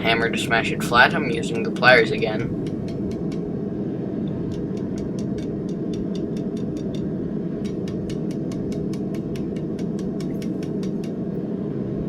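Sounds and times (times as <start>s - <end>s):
light rapid clicks: 4.5s - 11.2s.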